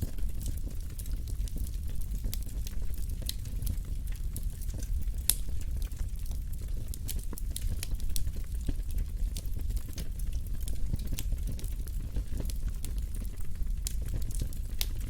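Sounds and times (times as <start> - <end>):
fire crackling and popping: 0.0 - 15.0
fire rumbling: 0.0 - 15.0.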